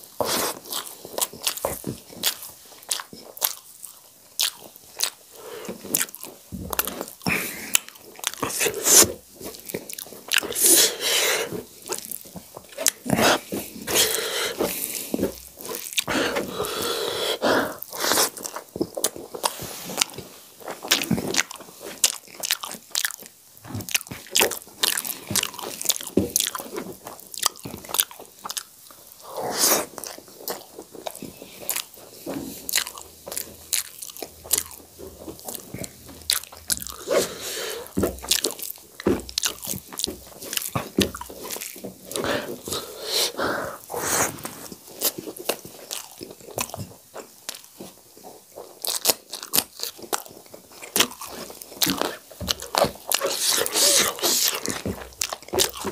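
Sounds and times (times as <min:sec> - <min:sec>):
crunchy chewing: 0:00.0 - 0:55.9
fingers squishing rice: 0:48.6 - 0:55.9.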